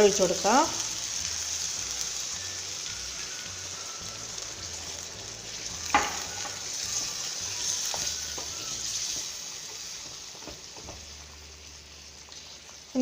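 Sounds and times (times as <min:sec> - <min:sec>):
curry sizzling in a pan: 0:00.0 - 0:13.0.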